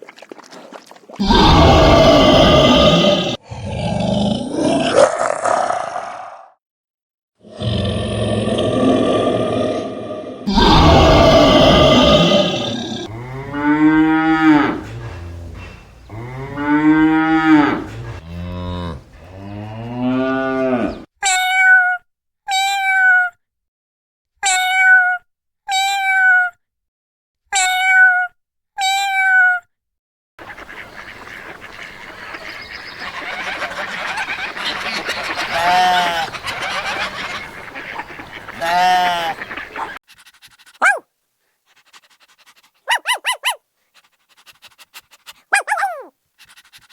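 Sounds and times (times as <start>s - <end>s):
cow mooing: 7.6s - 21.1s.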